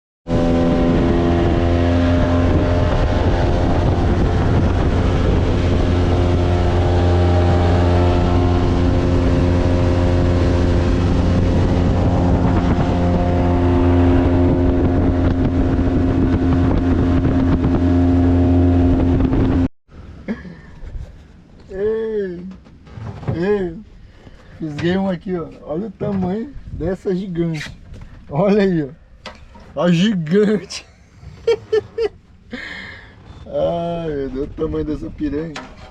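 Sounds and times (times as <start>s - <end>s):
boat motor running: 0.3s - 19.7s.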